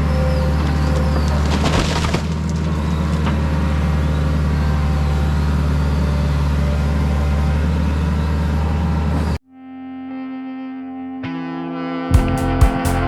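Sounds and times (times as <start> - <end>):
diesel engine droning: 0.0 - 9.4, 12.2 - 13.0.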